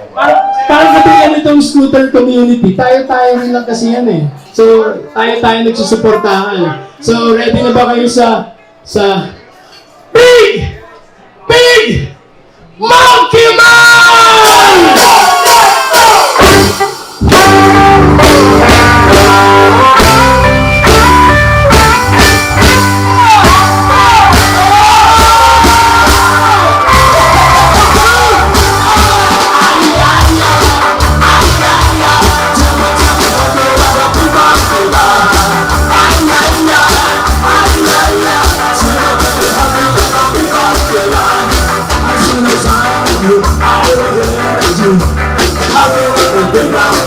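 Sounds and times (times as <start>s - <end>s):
live ska band playing: 13.4s - 47.0s.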